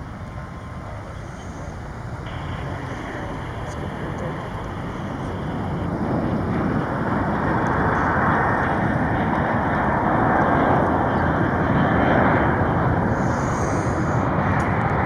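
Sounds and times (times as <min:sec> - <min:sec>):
jet engines at takeoff: 0:00.0 - 0:15.0.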